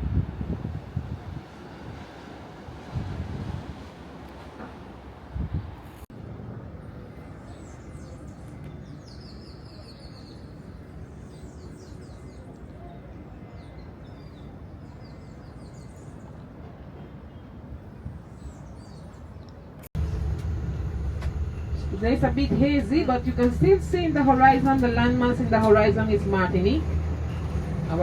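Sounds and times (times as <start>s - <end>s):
steady rushing noise: 19.9s - 28.0s.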